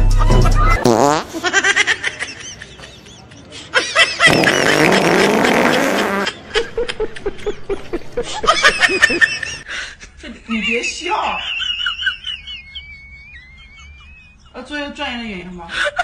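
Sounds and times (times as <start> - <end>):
wet fart sound effect: 0.8 - 1.3, 4.3 - 6.3
man laughing: 1.4 - 10.4, 11.4 - 14.5.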